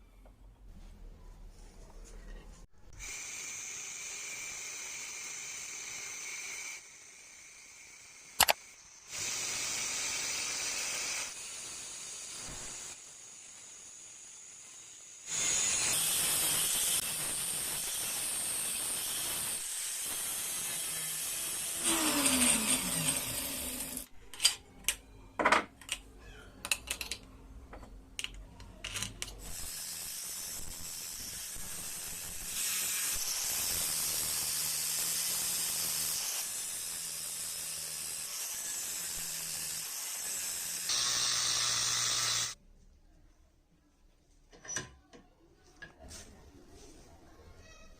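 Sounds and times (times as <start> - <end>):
power tool grinding metal: 14.2 - 24.1, 29.4 - 42.6.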